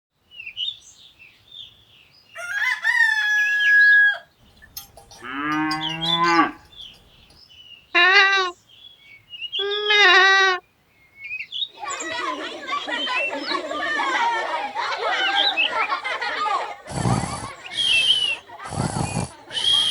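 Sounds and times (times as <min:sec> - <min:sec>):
rooster crowing: 0:02.4 - 0:04.3
small birds chirping: 0:04.3 - 0:19.9
high wavering animal calls: 0:04.6 - 0:07.3, 0:08.0 - 0:08.6, 0:09.6 - 0:10.6, 0:11.7 - 0:19.9
cow mooing: 0:04.8 - 0:07.0, 0:08.0 - 0:08.5, 0:09.6 - 0:10.6.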